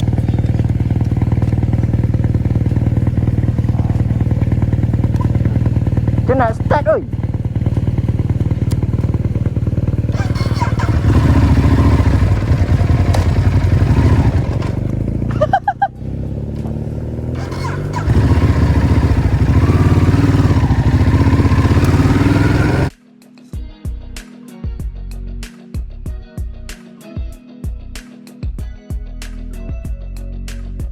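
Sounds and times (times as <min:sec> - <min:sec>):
motorcycle engine revving: 0:00.0 - 0:22.9.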